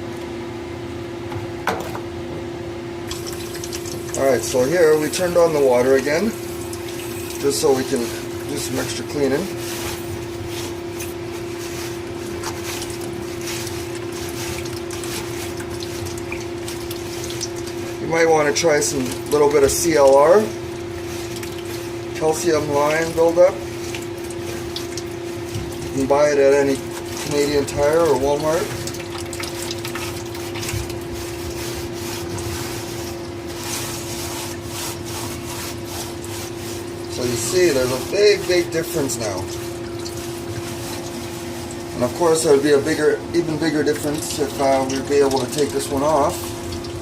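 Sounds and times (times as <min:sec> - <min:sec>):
steady hum: 0:00.0 - 0:47.0
scrubbing strokes: 0:03.1 - 0:47.0
water running into reservoir: 0:03.1 - 0:47.0
small water splashes: 0:22.8 - 0:42.0.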